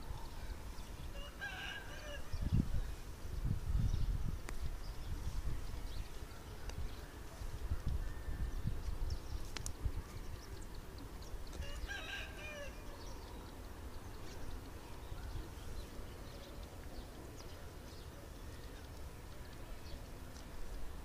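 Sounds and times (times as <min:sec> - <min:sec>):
drawn-out bird call: 0:10.3 - 0:20.3.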